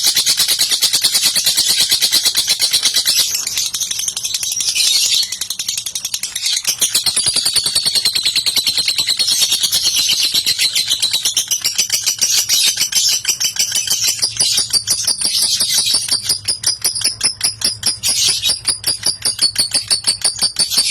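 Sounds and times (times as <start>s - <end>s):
lovebird chattering trill: 0.0s - 20.9s.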